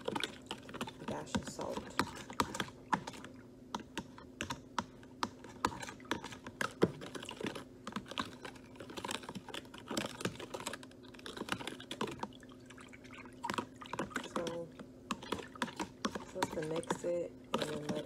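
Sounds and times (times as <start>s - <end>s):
faint steady hum: 0.0s - 18.0s
utensil tapping against bowl: 13.5s - 18.0s.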